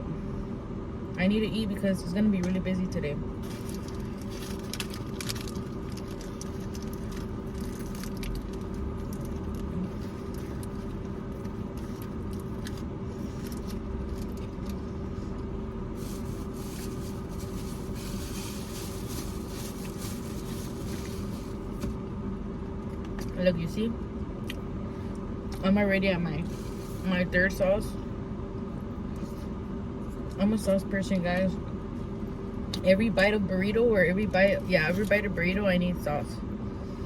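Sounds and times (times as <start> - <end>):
low background hum: 0.0 - 37.0
wrapper rustling: 3.4 - 14.7, 16.0 - 21.6.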